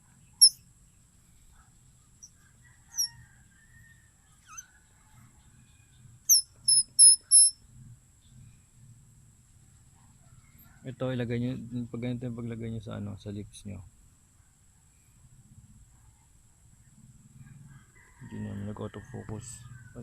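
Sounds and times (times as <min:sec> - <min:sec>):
flower whistle squeaky chirps: 0:00.4 - 0:00.6, 0:02.2 - 0:03.1, 0:04.4 - 0:04.7, 0:06.3 - 0:07.6.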